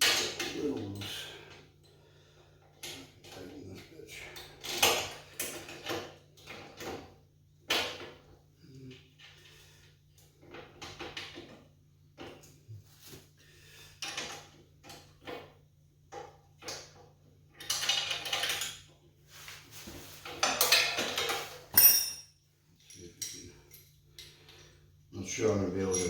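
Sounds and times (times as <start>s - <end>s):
metal tools clinking and rattling: 17.6s - 18.8s, 20.3s - 26.0s
ringing metallic clink: 21.8s - 22.3s.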